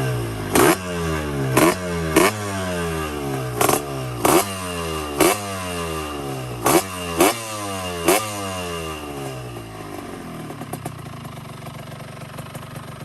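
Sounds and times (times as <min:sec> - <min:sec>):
two-stroke motorcycle engine: 0:00.0 - 0:13.0.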